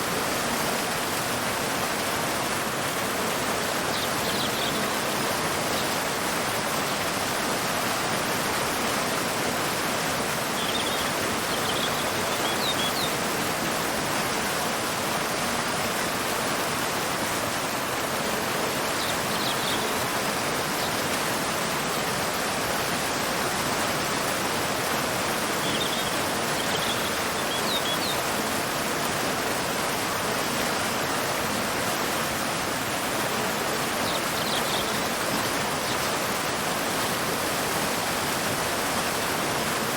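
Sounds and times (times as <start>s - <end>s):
waterfall rushing: 0.0s - 39.9s
bird chirps: 10.6s - 13.1s, 25.6s - 28.2s, 34.0s - 36.0s.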